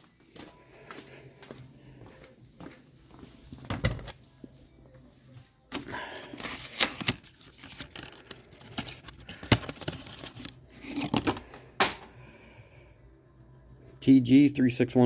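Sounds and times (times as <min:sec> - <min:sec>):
packaging being torn and crinkled: 0:06.2 - 0:10.6.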